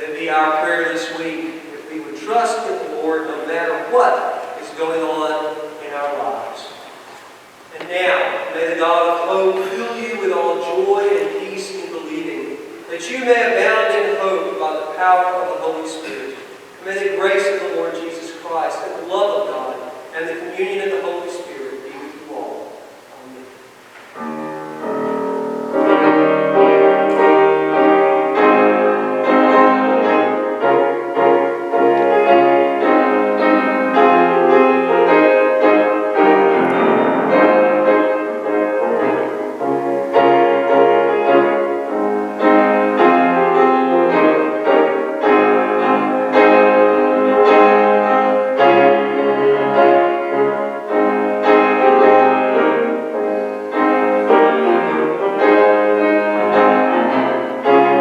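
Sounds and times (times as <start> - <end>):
piano playing chords and melody: 24.1 - 58.0.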